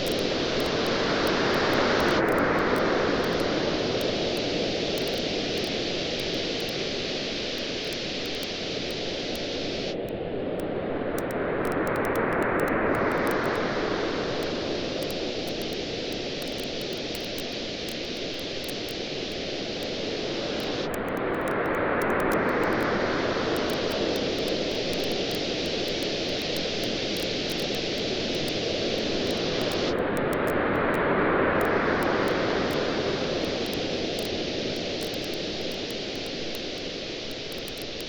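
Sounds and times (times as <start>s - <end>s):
waves washing onto a beach: 0.0s - 38.0s
campfire crackling: 23.5s - 30.4s, 32.0s - 38.0s.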